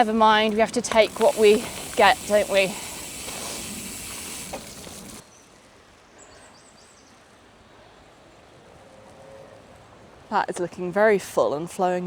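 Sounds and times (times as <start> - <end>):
bike tyres on wet gravel: 0.0 - 5.6.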